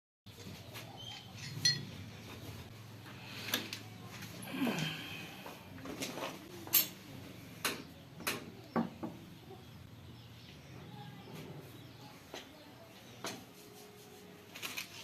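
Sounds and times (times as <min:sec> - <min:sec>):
metal tools clicking and knocking: 0:01.0 - 0:01.9, 0:06.6 - 0:07.0.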